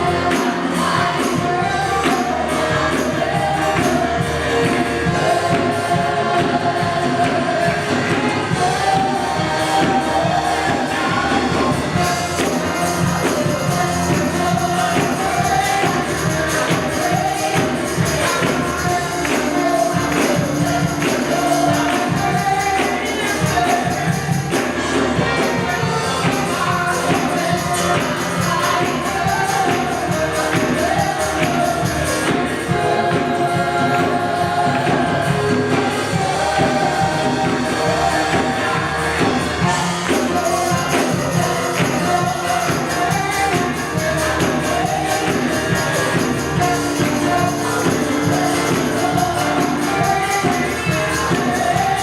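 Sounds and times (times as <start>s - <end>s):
gospel group singing with band: 0.0s - 52.0s
tambourine shaking: 11.9s - 33.3s, 35.9s - 52.0s.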